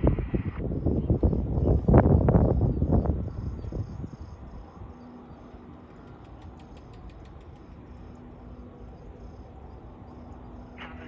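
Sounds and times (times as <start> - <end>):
faint steady hum: 0.0 - 11.0
insects chirping: 0.0 - 11.0
low outdoor rumble: 0.0 - 11.0
light clicks: 5.9 - 7.8.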